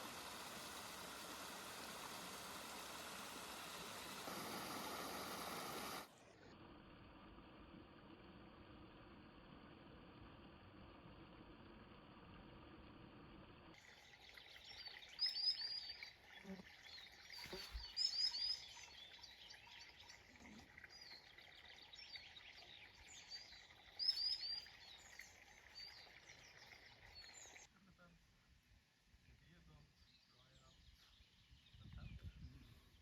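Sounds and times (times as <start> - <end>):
songbirds chirping: 13.8 - 27.7, 29.2 - 33.0.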